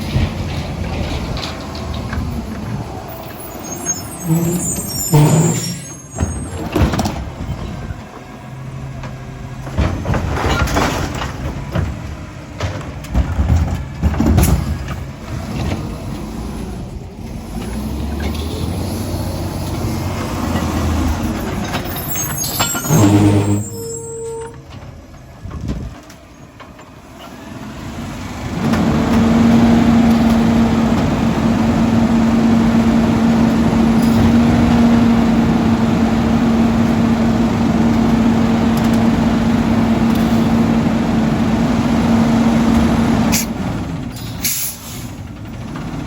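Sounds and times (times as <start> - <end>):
truck engine working under load: 0.0 - 46.0
clanks and knocks of truck arm: 6.3 - 7.9, 9.0 - 15.8, 24.7 - 27.0
air brake hiss: 44.2 - 45.2.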